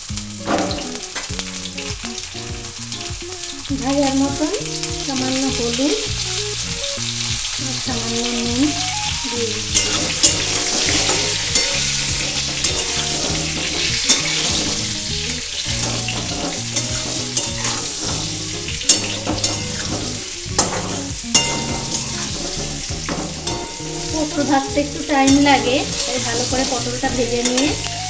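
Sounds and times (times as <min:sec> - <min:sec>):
vegetables sizzling in oil: 0:00.0 - 0:28.0
metal spatula scraping pan: 0:09.6 - 0:27.9.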